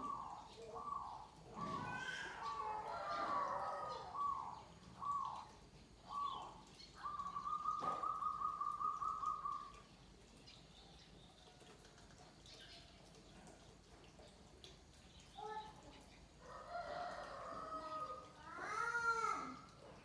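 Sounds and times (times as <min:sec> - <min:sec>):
dove cooing: 0:00.0 - 0:09.8.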